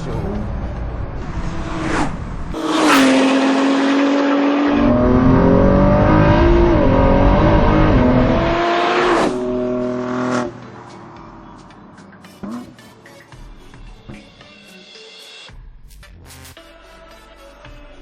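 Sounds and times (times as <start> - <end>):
car engine accelerating through gears: 0.2 - 11.5.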